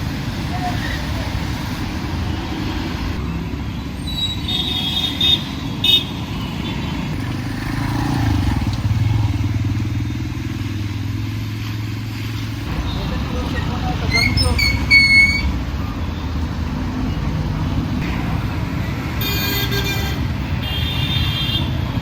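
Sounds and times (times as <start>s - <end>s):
road traffic rumble: 0.0s - 22.0s
vehicle horn toots: 19.2s - 21.7s.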